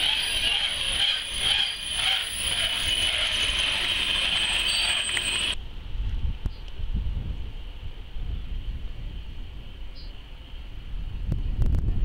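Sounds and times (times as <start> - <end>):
high metallic wheel squeal: 0.0 - 5.6
train coaches rolling on rails: 0.0 - 5.6.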